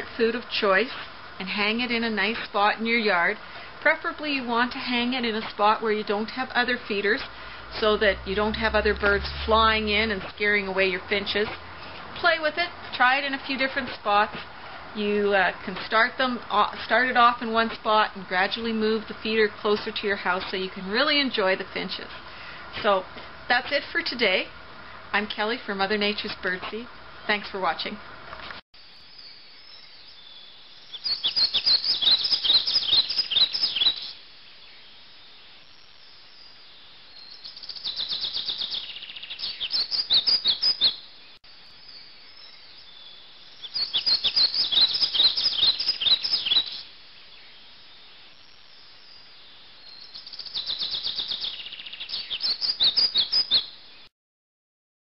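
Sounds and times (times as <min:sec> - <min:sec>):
songbird twittering: 0:29.0 - 0:34.9, 0:36.3 - 0:54.1.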